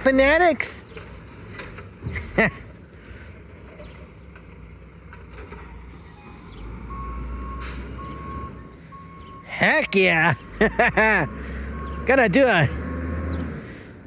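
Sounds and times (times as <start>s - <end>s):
diesel truck engine running: 0.0s - 14.0s
reversing alarm beeping: 6.1s - 13.1s.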